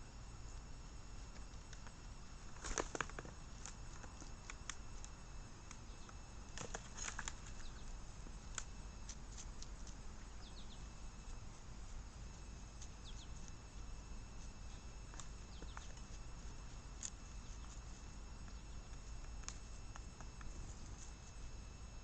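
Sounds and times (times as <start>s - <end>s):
birds pecking clicks: 1.3s - 11.4s, 12.3s - 20.9s
faint high bird chirps: 7.4s - 8.0s, 10.1s - 11.0s, 12.9s - 13.9s, 18.4s - 19.1s.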